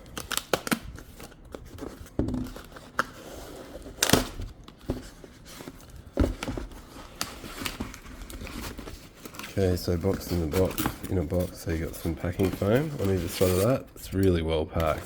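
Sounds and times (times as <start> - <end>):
cardboard and foam rustling: 0.0 - 14.1.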